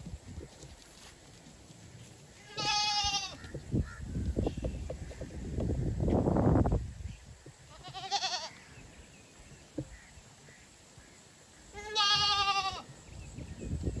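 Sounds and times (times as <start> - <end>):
goat bleating: 2.4 - 3.5, 7.7 - 8.6, 11.8 - 12.9.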